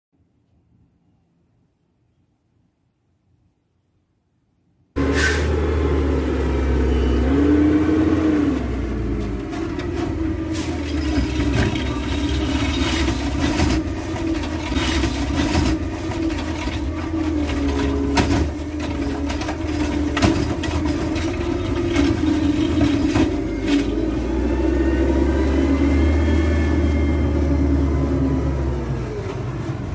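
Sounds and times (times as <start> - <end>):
garbage truck engine running: 5.0 - 29.9.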